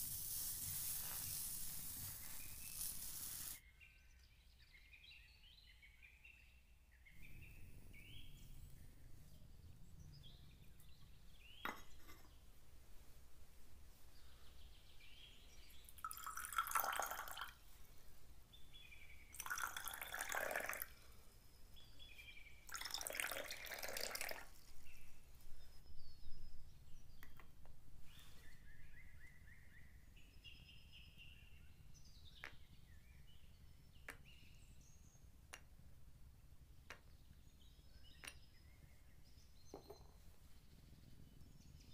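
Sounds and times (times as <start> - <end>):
glass and metal clinks: 11.7 - 12.3
water pouring and splashing: 16.0 - 17.5, 19.4 - 20.9, 22.7 - 24.6.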